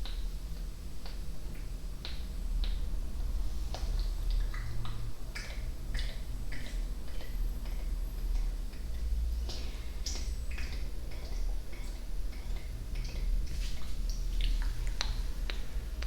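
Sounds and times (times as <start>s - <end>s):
steady low hum: 0.0s - 16.0s
tongue clicks and mouth pops: 8.4s - 15.6s.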